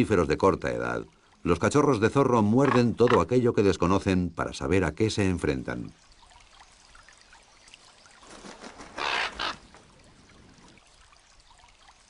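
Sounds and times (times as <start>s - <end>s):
faint stream trickling: 0.0s - 12.0s
raven squawk: 8.9s - 9.7s.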